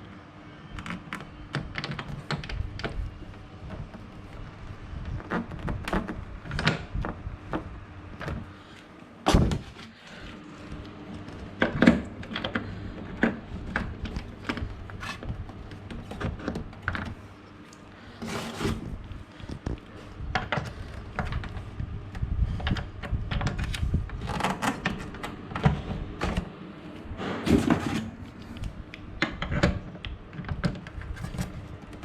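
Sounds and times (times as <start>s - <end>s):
heavy thumps: 9.3s - 9.8s.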